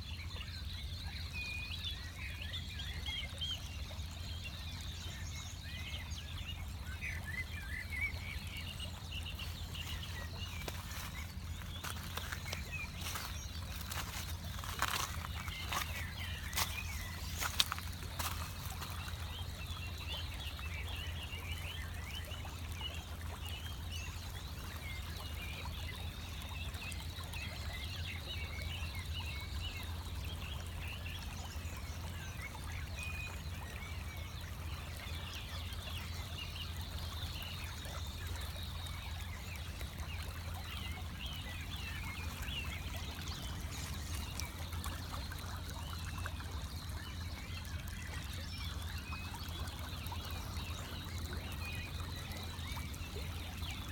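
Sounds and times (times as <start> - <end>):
small birds chirping: 5.1 - 22.9, 34.9 - 53.9.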